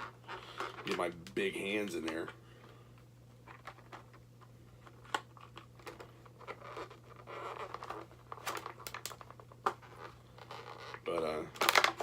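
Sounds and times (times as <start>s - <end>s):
plastic scraping and crinkling: 4.8s - 12.0s.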